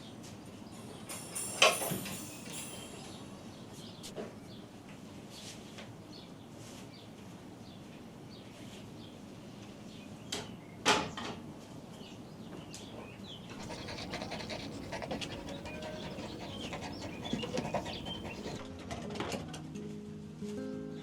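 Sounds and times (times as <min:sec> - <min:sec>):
dog panting: 0:13.6 - 0:18.6
faint bird chirps: 0:13.6 - 0:18.6.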